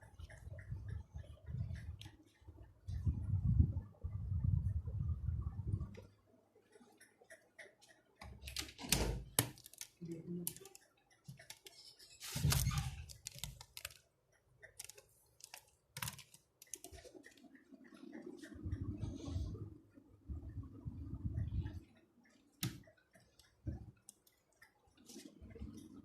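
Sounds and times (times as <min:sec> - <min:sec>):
objects being handled: 0:08.4 - 0:14.0, 0:14.7 - 0:17.4.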